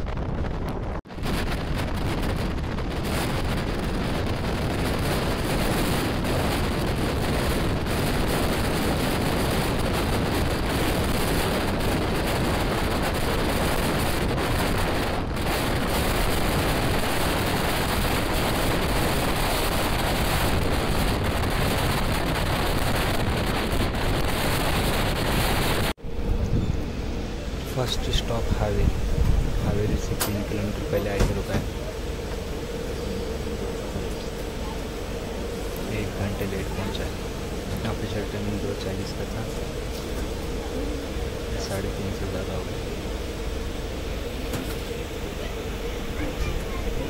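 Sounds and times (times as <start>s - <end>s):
moving train running noise: 0.0s - 47.0s
wind buffeting microphone: 0.0s - 47.0s.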